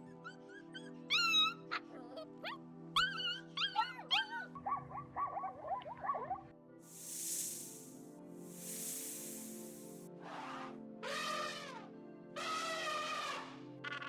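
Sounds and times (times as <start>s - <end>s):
background music with held tones: 0.0s - 14.0s
animal high-pitched cries: 11.0s - 14.0s.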